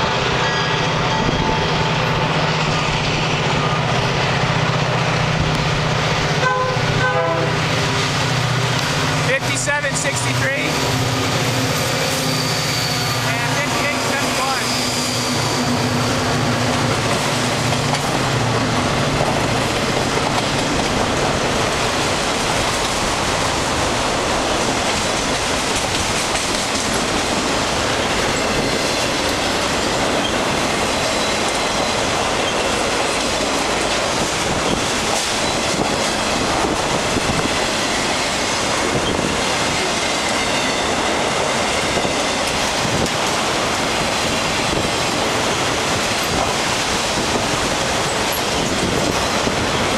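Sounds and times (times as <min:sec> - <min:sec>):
locomotive engine hum: 0:00.0 - 0:49.9
train wheels rumbling on rail: 0:00.0 - 0:49.9
faint wheel squeal: 0:12.0 - 0:13.3, 0:14.6 - 0:16.2.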